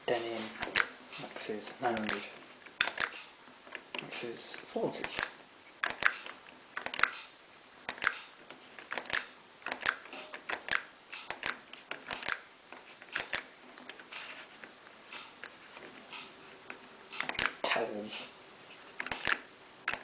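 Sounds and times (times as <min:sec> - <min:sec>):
washing machine control clicks: 0:00.6 - 0:01.3, 0:01.9 - 0:03.4, 0:05.0 - 0:07.3, 0:07.9 - 0:08.3, 0:08.9 - 0:12.4, 0:13.1 - 0:13.5, 0:17.1 - 0:17.6.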